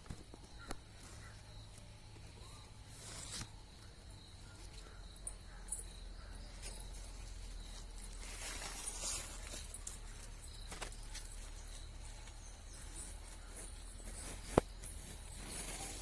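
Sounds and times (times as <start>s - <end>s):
soft rustling: 5.7s - 16.0s.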